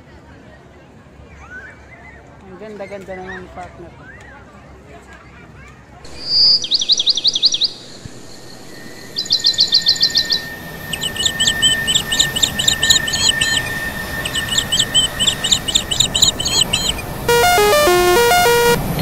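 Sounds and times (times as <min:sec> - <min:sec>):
thin steady whine: 0:07.7 - 0:19.0
bird chirping high notes: 0:09.2 - 0:19.0
electronic tones stepping in pitch: 0:11.2 - 0:19.0.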